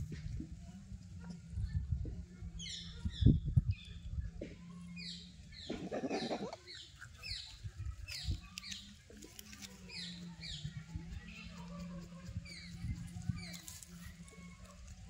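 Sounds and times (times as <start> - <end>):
birds chirping: 4.8 - 14.1.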